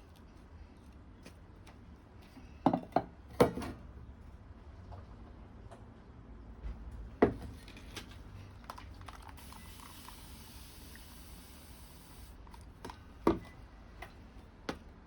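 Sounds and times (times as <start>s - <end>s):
water trickling onto soil: 8.6s - 12.3s.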